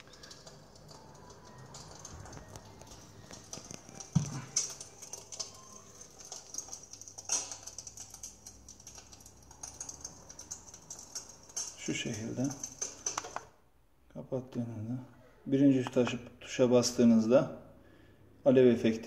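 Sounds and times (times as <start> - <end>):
fire crackling from a speaker: 0.0 - 13.6.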